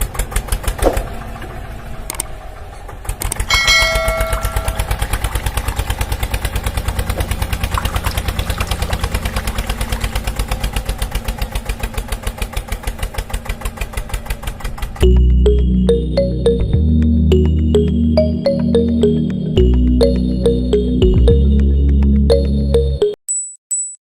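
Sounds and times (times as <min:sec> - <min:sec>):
small engine puttering: 0:00.0 - 0:15.0
brief ringing tone: 0:03.5 - 0:05.1.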